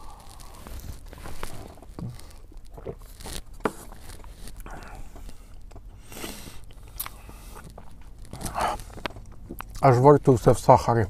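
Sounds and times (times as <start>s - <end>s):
chewing with small clicks: 6.6s - 9.9s.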